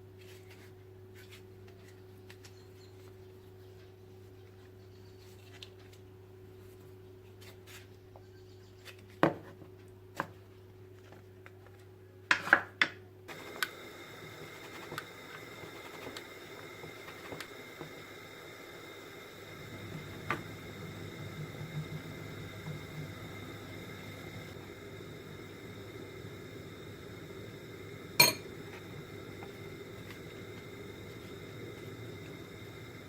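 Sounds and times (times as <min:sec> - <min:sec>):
low electrical hum: 0:00.0 - 0:33.0
faint high whine: 0:13.3 - 0:33.0.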